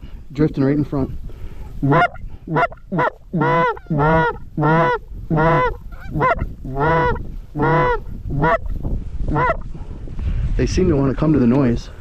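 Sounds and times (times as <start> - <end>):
goose honking: 1.8 - 8.7, 9.3 - 9.6.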